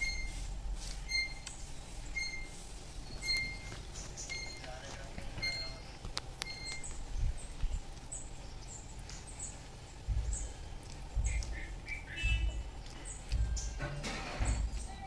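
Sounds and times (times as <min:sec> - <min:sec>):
birds chirping: 0:00.0 - 0:15.0
low thumps: 0:05.2 - 0:15.0.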